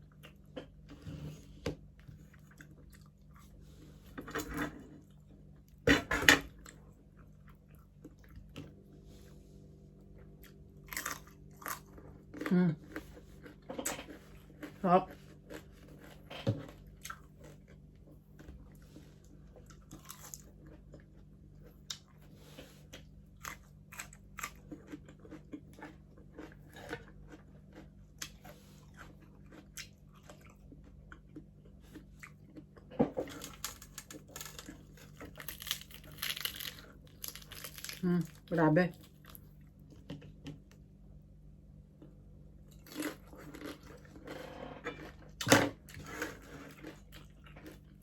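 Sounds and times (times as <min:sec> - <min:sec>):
crunching crispy pork skin: 0:10.8 - 0:12.6, 0:33.3 - 0:39.5.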